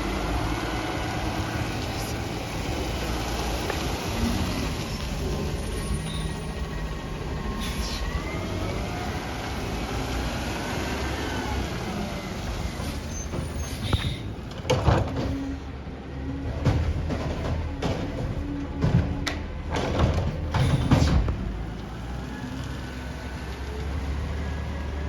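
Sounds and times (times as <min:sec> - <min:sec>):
garbage truck engine rumbling: 0:00.0 - 0:25.0
loud knocks: 0:16.5 - 0:21.6.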